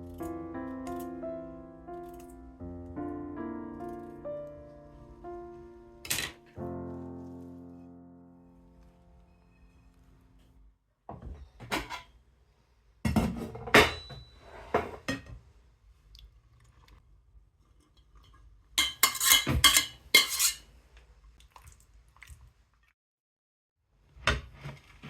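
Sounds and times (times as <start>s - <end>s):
dishes and cutlery clinking: 13.1s - 15.4s, 18.8s - 20.7s.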